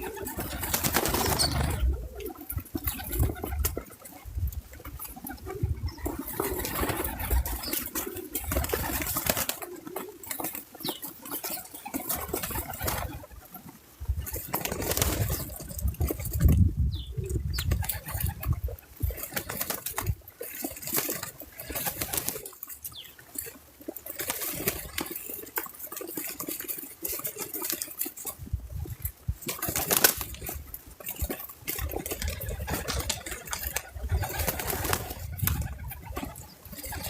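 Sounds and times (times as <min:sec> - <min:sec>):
bird wings fluttering: 0:00.0 - 0:37.0
birds scratching: 0:00.0 - 0:37.0
birds pecking clicks: 0:19.1 - 0:28.3.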